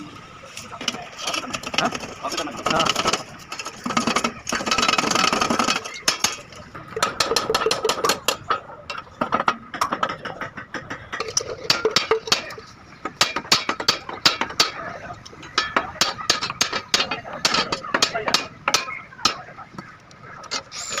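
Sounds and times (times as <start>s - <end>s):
metal tapping on steel: 5.6s - 19.4s.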